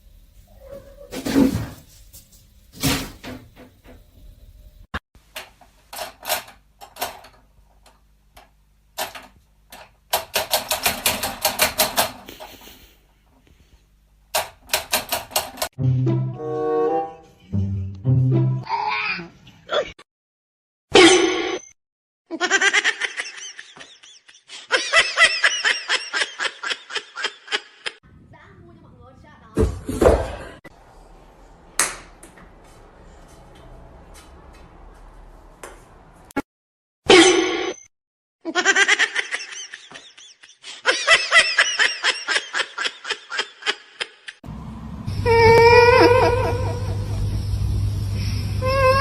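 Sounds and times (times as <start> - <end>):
person laughing hard: 22.3 - 28.0, 38.5 - 44.4, 45.3 - 47.4.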